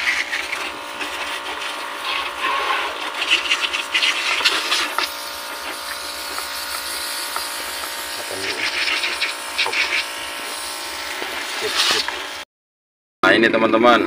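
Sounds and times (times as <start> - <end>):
pressure washer motor buzzing: 0.0 - 12.4
water jet spraying: 0.0 - 12.4.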